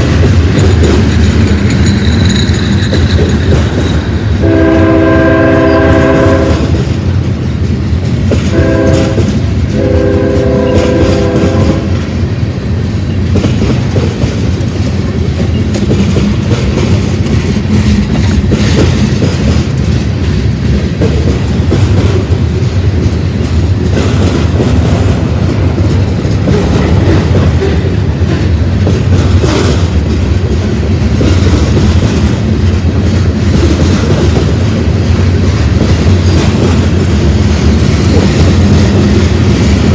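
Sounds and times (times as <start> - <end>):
freight train rumbling past: 0.0 - 39.9
wheels clacking over rail joints: 0.0 - 39.9
locomotive air horn blasts: 4.4 - 6.8, 8.5 - 12.0.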